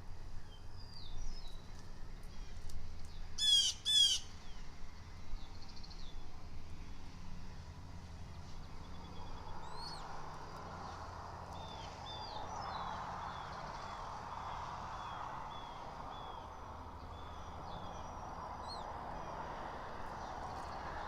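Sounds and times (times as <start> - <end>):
small bird whistling calls: 3.4 - 4.3, 9.6 - 10.1.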